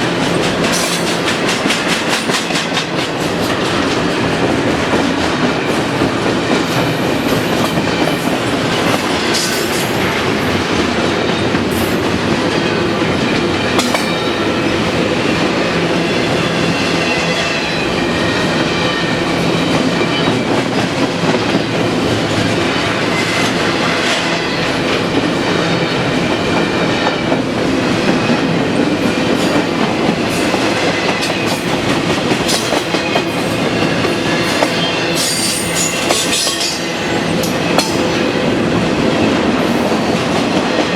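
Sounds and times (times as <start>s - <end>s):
train wheels clacking over rail joints: 0.0s - 15.6s, 18.6s - 38.3s.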